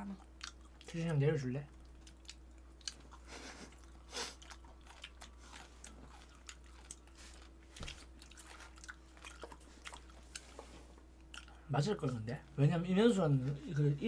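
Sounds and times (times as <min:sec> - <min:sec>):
chewing and mouth sounds: 0:00.0 - 0:12.5.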